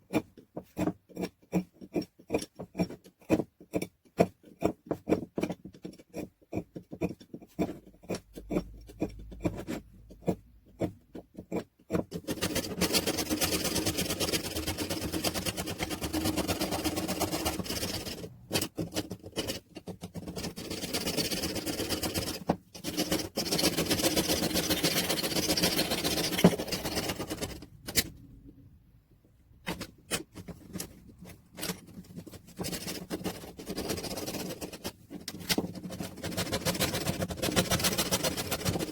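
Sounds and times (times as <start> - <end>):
metal parts clicking and knocking: 6.8 - 28.4, 29.6 - 38.9.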